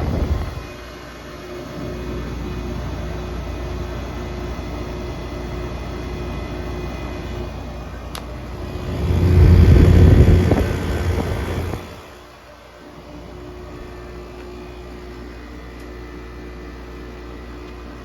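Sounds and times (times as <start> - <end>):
air conditioner blowing: 0.0 - 18.0
loud low rumble: 8.3 - 12.2.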